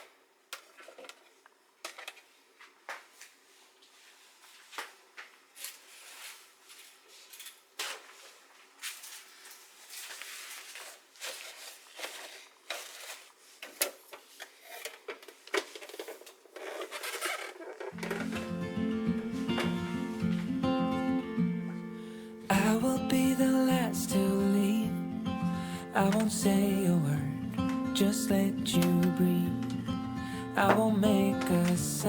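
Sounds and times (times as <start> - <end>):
rustling and scraping: 0.6 - 21.8
acoustic guitar music: 17.9 - 32.0.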